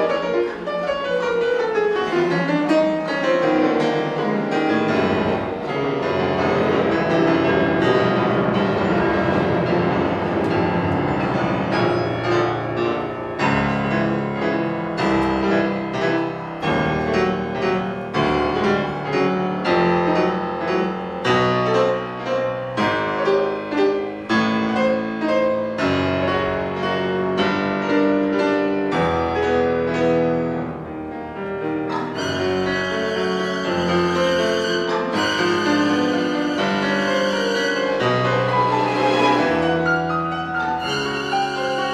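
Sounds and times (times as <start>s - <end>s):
piano chords: 0.0s - 41.9s
string orchestra: 29.1s - 41.9s.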